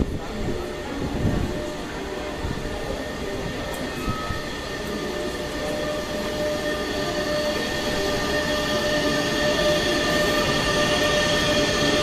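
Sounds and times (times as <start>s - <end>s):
high-pitched whining tones: 0.1s - 12.0s.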